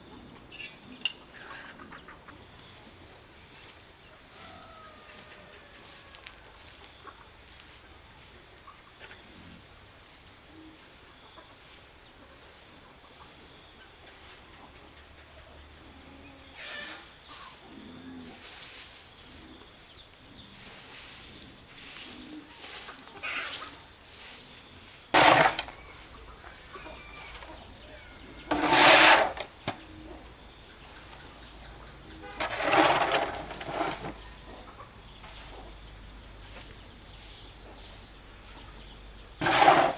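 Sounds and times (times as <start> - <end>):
insects chirring: 0.0 - 39.9
loud short sounds: 25.2 - 26.0, 32.4 - 34.2.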